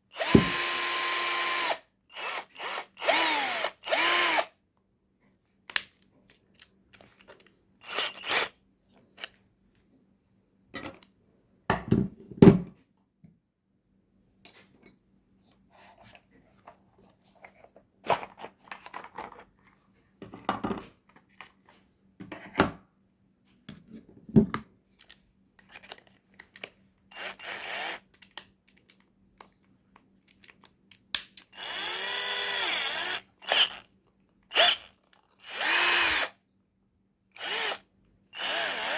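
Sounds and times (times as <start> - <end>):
drill motor running: 0.2 - 4.5, 7.8 - 8.5, 27.1 - 28.0, 31.6 - 33.8, 34.5 - 36.4, 37.4 - 37.8, 38.4 - 38.9
clicks and knocks of handling: 28.1 - 31.5.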